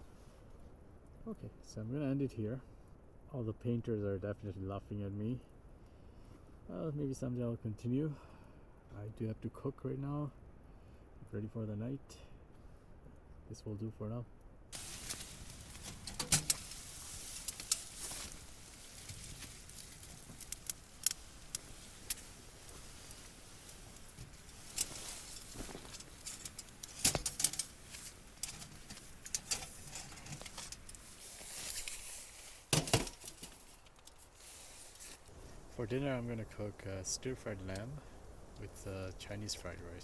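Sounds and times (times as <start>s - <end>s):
faint steady hiss: 0.0s - 40.0s
small objects clicking and rattling: 14.8s - 23.3s, 23.9s - 31.0s.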